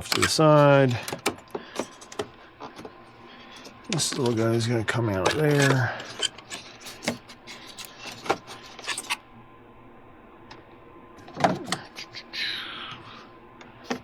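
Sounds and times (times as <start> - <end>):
hand tools clicking and knocking: 0.0 - 2.3, 5.2 - 9.1.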